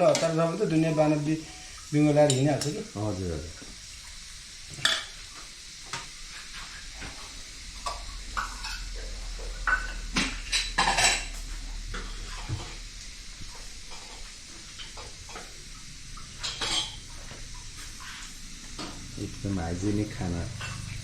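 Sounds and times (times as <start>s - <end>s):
metal utensils clinking on pots: 0.0s - 3.0s, 4.7s - 5.2s, 7.8s - 12.8s, 16.2s - 17.1s, 20.0s - 21.0s.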